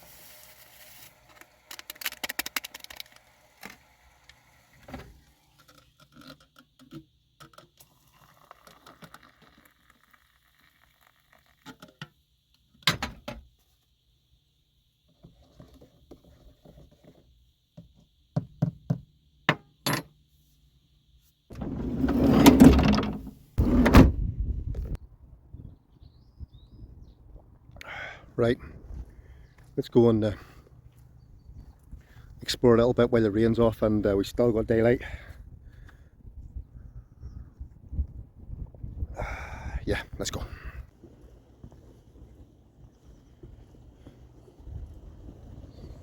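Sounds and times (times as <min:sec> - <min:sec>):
objects knocking and scraping: 0:21.5 - 0:24.1.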